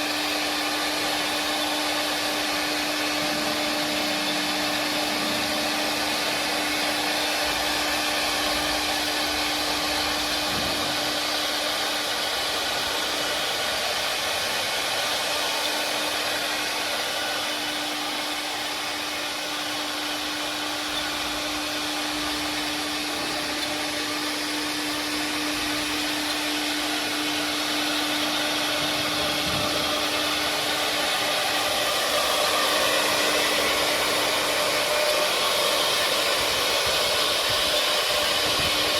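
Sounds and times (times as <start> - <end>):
constant machine hum: 0.0 - 38.9
wood carving machine hissing: 0.0 - 38.9.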